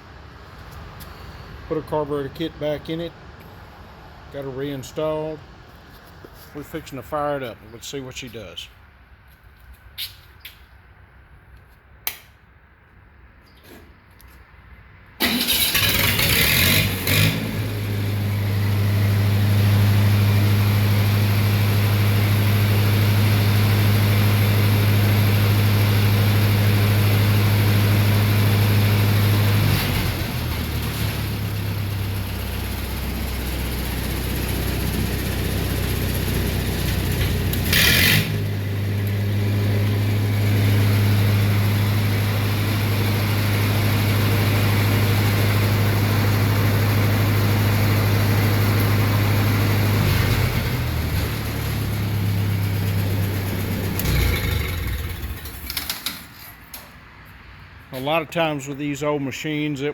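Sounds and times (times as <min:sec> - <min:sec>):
welder engine starting and running: 0:15.1 - 0:56.8.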